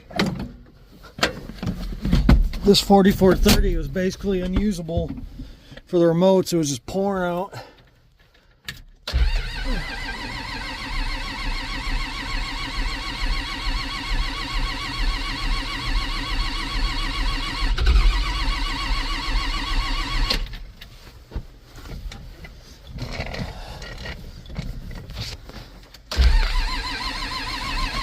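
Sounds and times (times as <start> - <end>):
diesel tractor engine running: 9.1 - 20.4.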